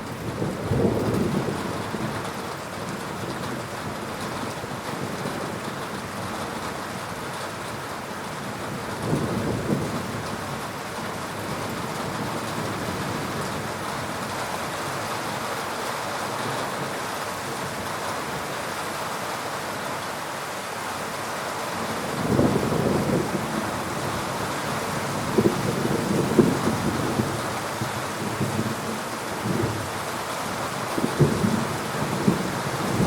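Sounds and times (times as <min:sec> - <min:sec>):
heavy rain: 0:00.0 - 0:33.0
low rumble of thunder: 0:00.1 - 0:02.3, 0:08.6 - 0:10.6, 0:22.0 - 0:29.9, 0:30.9 - 0:33.0.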